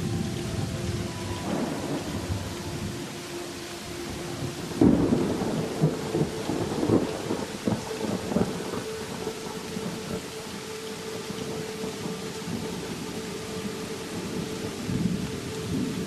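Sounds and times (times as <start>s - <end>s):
steady rain: 0.0s - 16.0s
thunder cracks: 1.4s - 2.5s, 4.8s - 8.8s.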